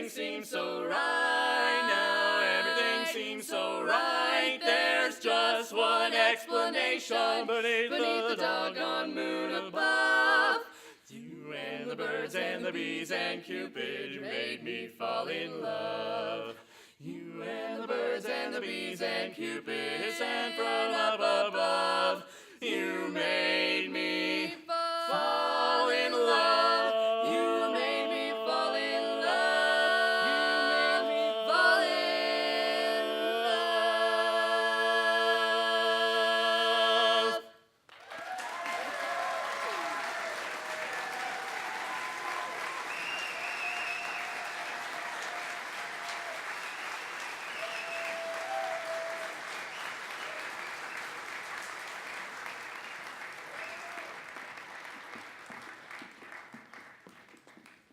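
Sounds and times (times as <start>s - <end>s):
barbershop quartet singing: 0.0s - 37.6s
audience cheering: 37.9s - 56.0s
audience applause: 37.9s - 57.9s.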